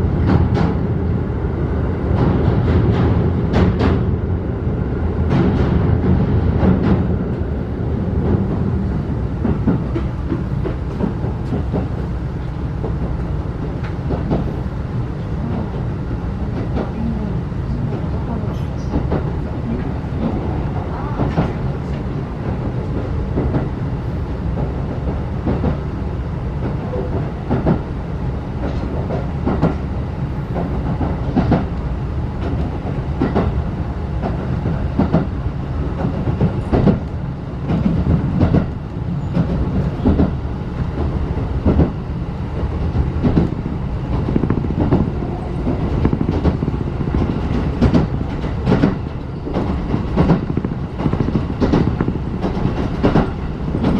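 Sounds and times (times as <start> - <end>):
train coach low rumble: 0.0 - 53.9
wheels clacking over rail joints: 42.8 - 53.9.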